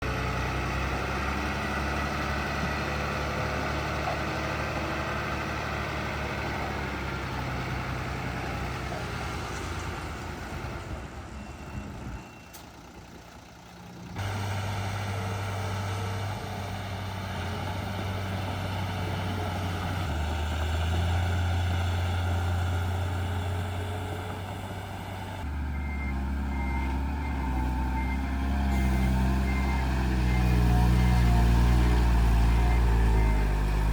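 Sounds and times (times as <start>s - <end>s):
diesel engines running: 0.0s - 33.9s
reversing beeper: 11.2s - 12.7s, 25.7s - 33.9s.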